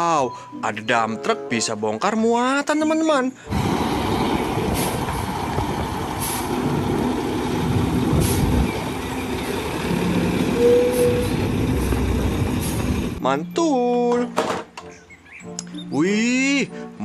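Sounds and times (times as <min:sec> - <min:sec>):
diesel truck engine running: 0:03.5 - 0:13.2
gravel spilling: 0:03.5 - 0:13.2.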